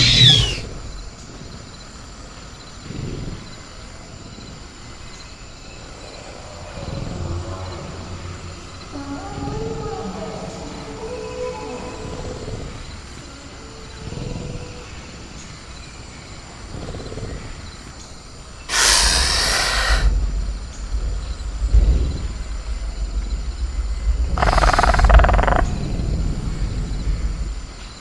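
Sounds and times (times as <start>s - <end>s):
creature screeching roars: 0.0s - 0.7s, 18.7s - 20.1s
low growls: 0.0s - 0.8s, 5.8s - 15.3s
low rumble: 19.0s - 27.9s.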